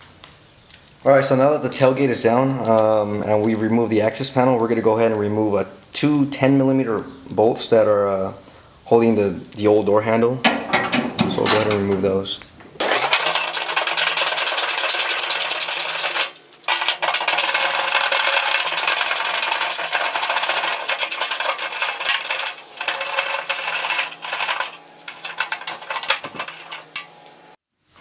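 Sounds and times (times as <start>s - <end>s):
power driver rattling: 10.4s - 27.4s.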